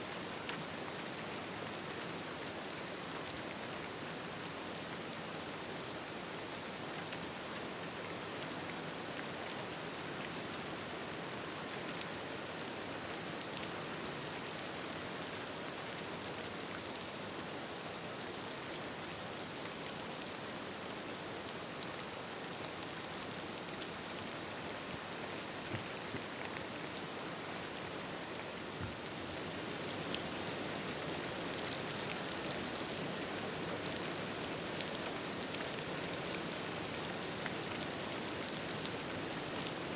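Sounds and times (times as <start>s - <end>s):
rain falling: 0.1s - 39.9s.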